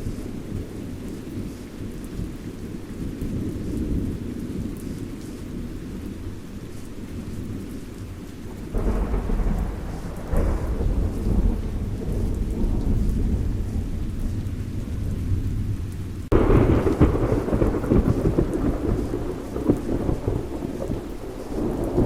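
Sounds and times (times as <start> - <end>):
steady rain: 0.0 - 22.0
rolling thunder: 8.4 - 22.0.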